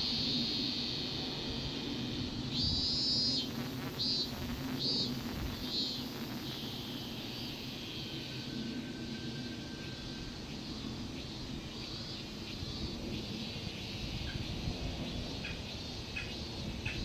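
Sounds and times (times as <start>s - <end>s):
cicadas buzzing: 0.0s - 17.0s.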